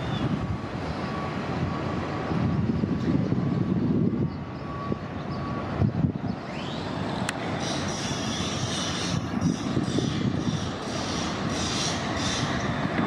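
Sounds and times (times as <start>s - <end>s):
bus engines rumbling: 0.0s - 13.0s.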